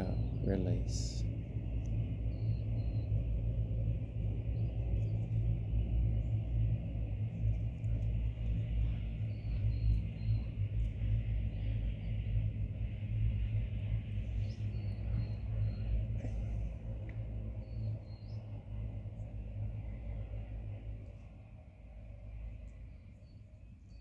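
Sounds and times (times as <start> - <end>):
low outdoor rumble: 0.0 - 24.0
faint high bird chirps: 8.8 - 12.2, 14.3 - 18.6.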